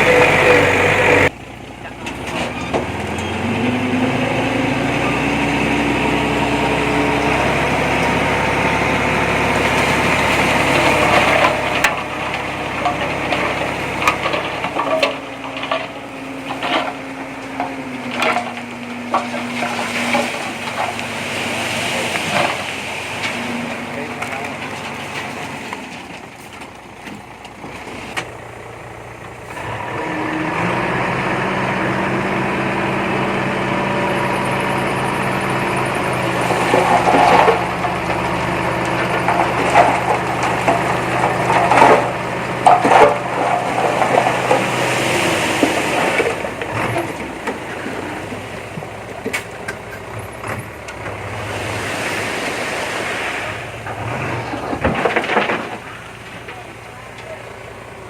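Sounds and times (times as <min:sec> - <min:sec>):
heavy machinery diesel engine: 0:00.0 - 0:58.0
sharp clanks and knocks: 0:36.3 - 0:48.1.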